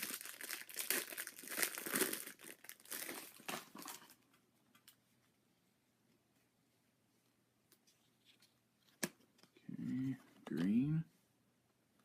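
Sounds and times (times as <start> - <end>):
plastic wrapper crinkling: 0.0 - 5.0.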